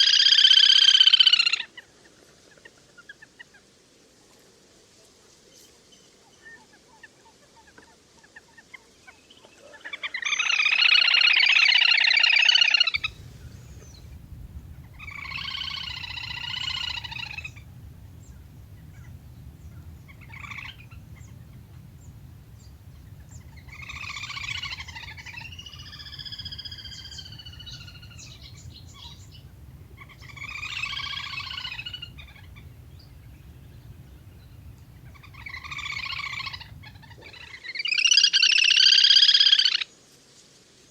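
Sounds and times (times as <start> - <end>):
whistling duck calls: 12.2 - 39.6
steady low hum: 13.0 - 37.4.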